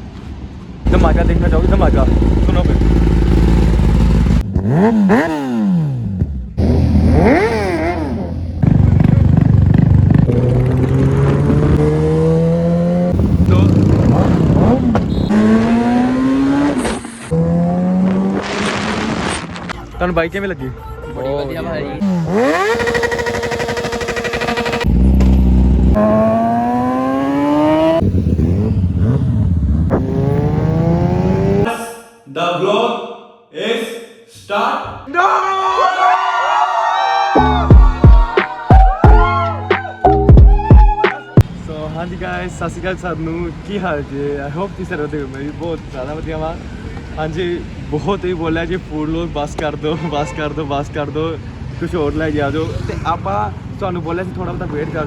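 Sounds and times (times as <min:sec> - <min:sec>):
motorcycle engine revving: 0:00.9 - 0:19.7, 0:22.0 - 0:31.7.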